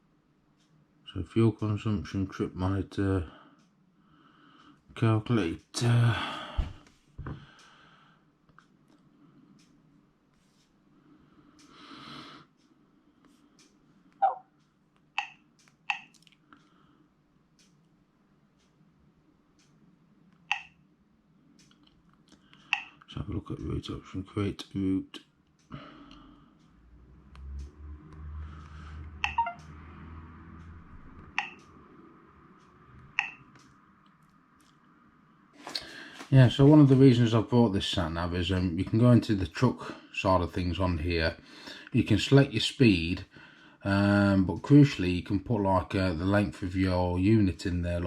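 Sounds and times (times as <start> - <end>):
touchscreen beeps: 14.2 - 14.4, 29.2 - 29.7.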